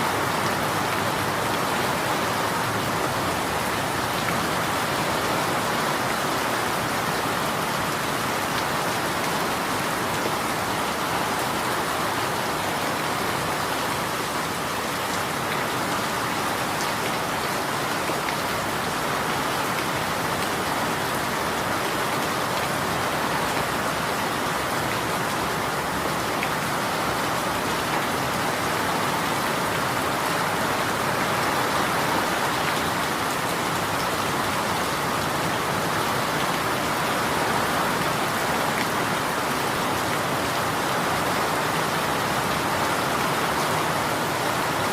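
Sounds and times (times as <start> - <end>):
steady rain pattering: 0.0 - 44.9.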